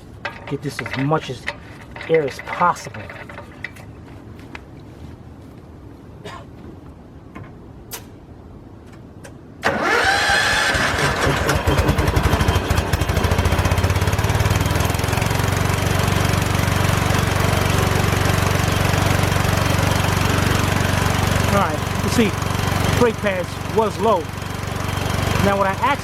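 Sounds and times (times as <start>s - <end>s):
air compressor pulsing: 0.2s - 3.8s, 9.6s - 26.0s.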